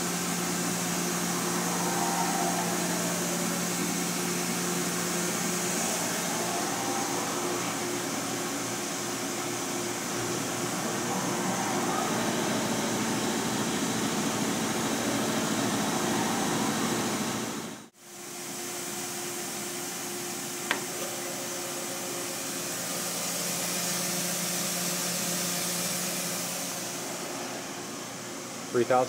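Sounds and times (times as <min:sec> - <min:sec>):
machine spindle whirring: 0:00.0 - 0:17.9.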